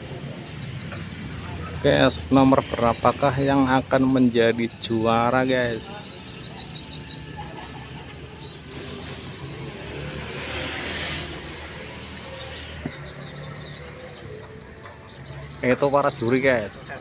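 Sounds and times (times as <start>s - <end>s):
birds chirping and trilling: 0.0s - 17.0s.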